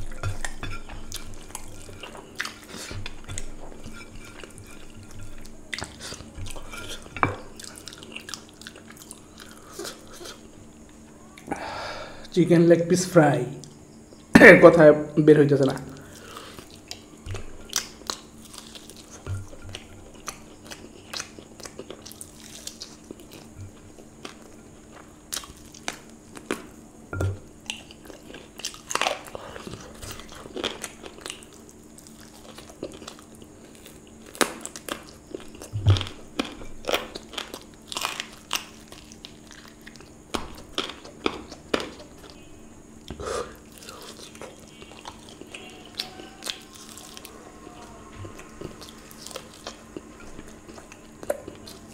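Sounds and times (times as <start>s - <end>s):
faint steady hum: 0.0s - 51.9s
chewing fried chicken crunches: 16.0s - 26.7s, 27.6s - 42.4s.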